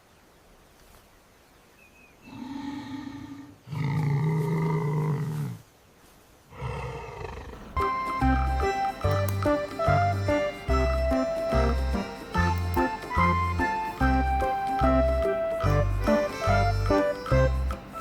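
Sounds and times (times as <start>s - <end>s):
lion roaring: 2.3s - 5.6s, 6.5s - 7.8s.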